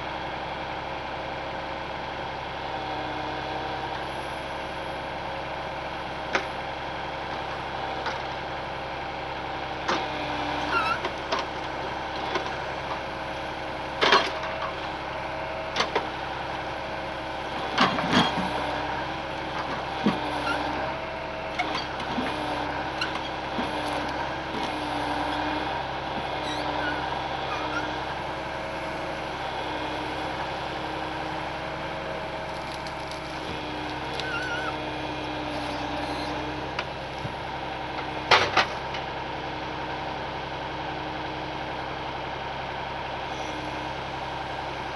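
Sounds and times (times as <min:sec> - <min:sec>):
truck engine running: 0:00.0 - 0:44.9
small squeaks: 0:10.6 - 0:11.1, 0:26.2 - 0:28.1, 0:32.5 - 0:36.5.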